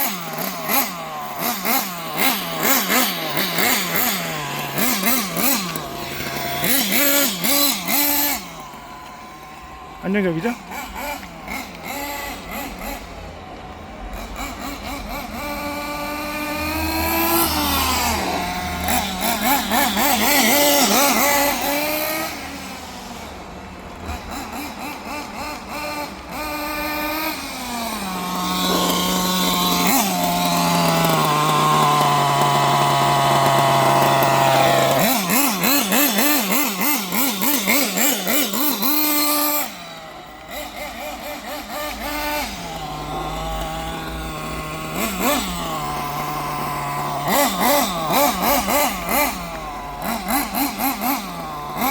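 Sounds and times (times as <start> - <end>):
small nitro engine revving: 0.0 - 51.9.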